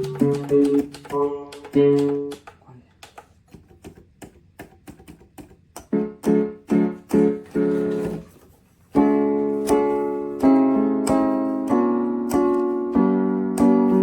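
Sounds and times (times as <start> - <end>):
piano chords: 0.0 - 2.5, 5.4 - 14.0.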